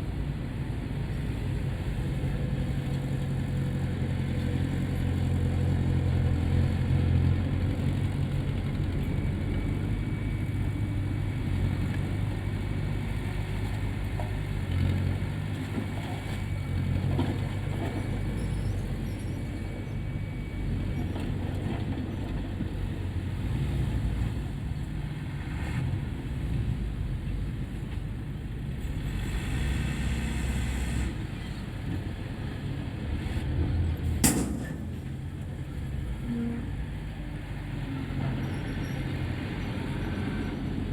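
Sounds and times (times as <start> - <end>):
diesel machinery rumbling: 0.0 - 40.9
sharp knock: 34.2 - 35.3.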